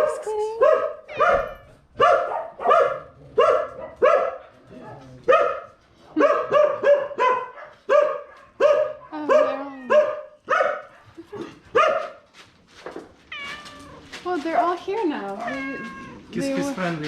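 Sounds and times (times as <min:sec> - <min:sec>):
dog barking: 0:00.0 - 0:12.2.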